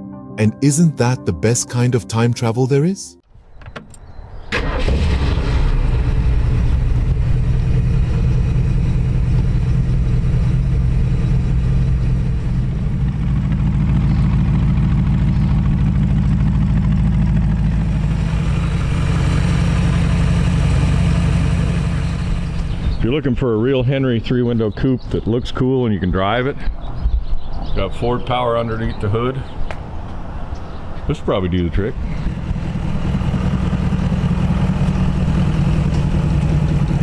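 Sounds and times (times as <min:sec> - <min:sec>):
car engine starting and idling: 0:03.5 - 0:23.0, 0:31.8 - 0:37.0.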